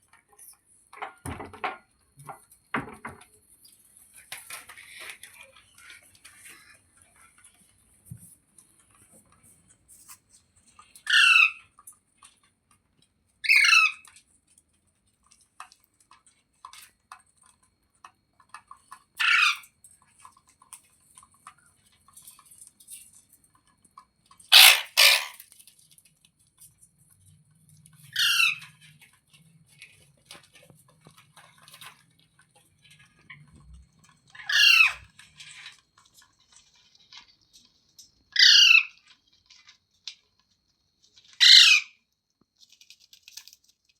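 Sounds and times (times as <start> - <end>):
parakeet squawking: 24.5 - 25.4, 34.4 - 35.0, 38.4 - 38.9, 41.4 - 41.9.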